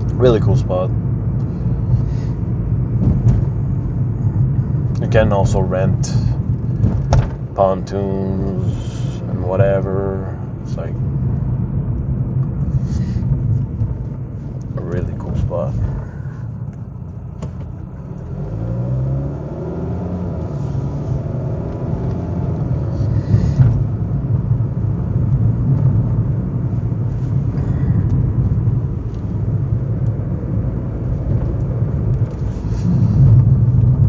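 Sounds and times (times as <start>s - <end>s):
car engine accelerating: 0.0s - 34.0s
road rumble: 0.0s - 34.0s
thump: 3.0s - 3.6s, 6.8s - 7.4s.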